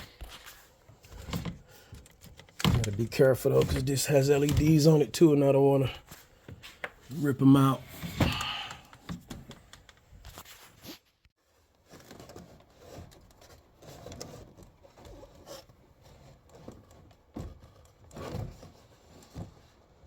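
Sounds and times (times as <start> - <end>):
knocks and scrapes of car trim: 12.0 - 20.0.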